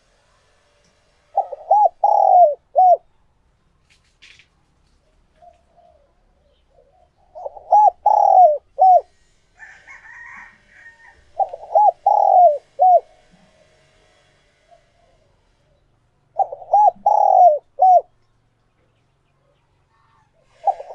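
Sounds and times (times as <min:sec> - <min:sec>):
dove cooing: 0:01.3 - 0:03.1, 0:05.3 - 0:09.2, 0:09.8 - 0:13.3, 0:16.3 - 0:18.2, 0:19.9 - 0:20.9.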